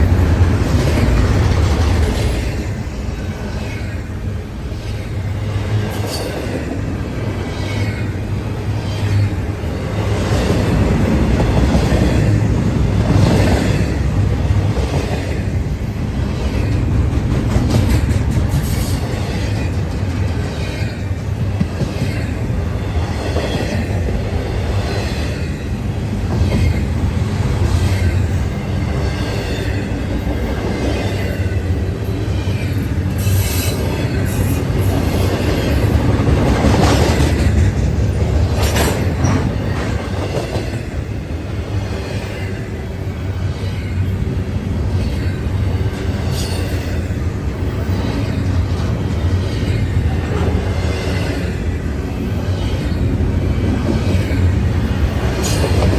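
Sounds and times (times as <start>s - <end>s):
train wheels rumbling on rails: 0.0s - 55.9s
wheels clicking over rail joints: 16.4s - 24.4s, 32.4s - 41.0s.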